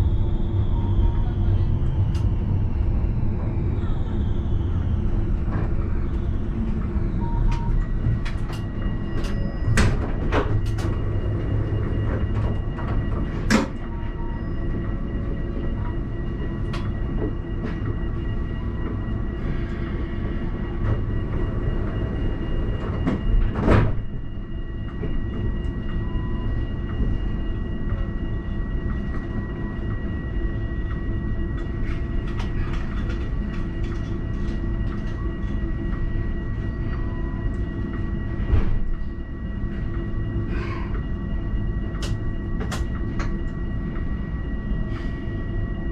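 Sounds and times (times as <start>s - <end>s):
tram rumble and hum: 0.0s - 45.9s.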